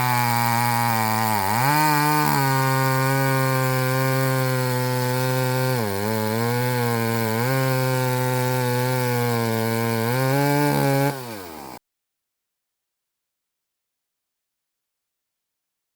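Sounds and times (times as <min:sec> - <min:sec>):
chainsaw cutting wood: 0:00.0 - 0:11.8.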